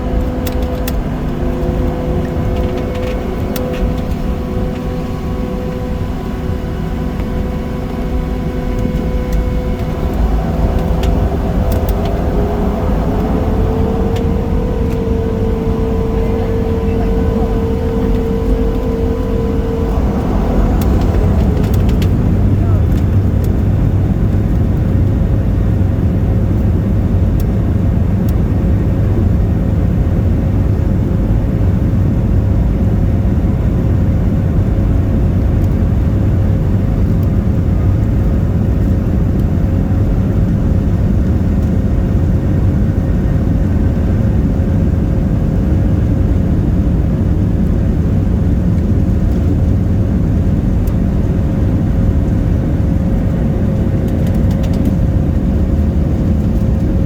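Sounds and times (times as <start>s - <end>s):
thin steady hum: 0.0s - 24.9s
jet engine drone in cabin: 0.0s - 57.0s.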